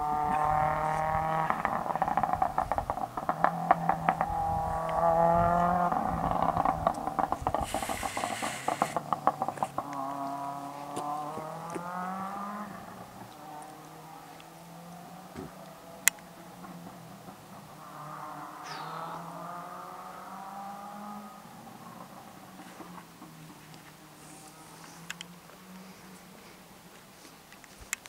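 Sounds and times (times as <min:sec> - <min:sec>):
car engine revving hard: 0:00.0 - 0:26.2
exhaust pops and bangs: 0:00.1 - 0:13.3
brief hiss: 0:07.6 - 0:09.0.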